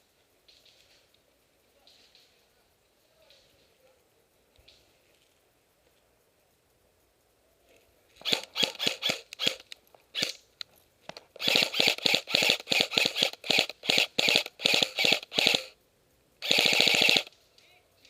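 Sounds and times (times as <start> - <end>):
airsoft guns firing: 8.2 - 10.4, 11.4 - 15.8, 16.4 - 17.4.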